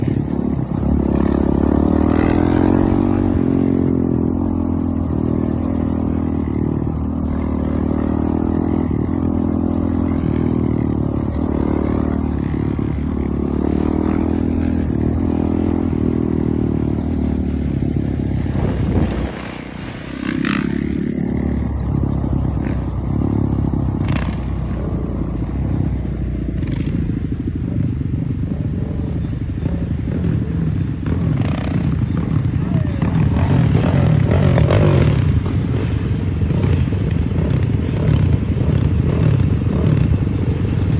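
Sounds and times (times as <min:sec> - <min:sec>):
dirt bike engine revving: 0:00.0 - 0:25.1, 0:28.8 - 0:40.9.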